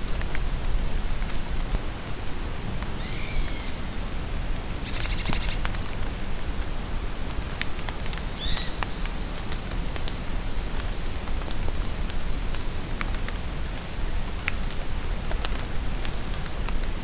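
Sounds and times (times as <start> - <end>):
steady rain: 0.0 - 17.0
songbirds calling: 2.7 - 4.0, 4.8 - 6.9, 8.2 - 9.3.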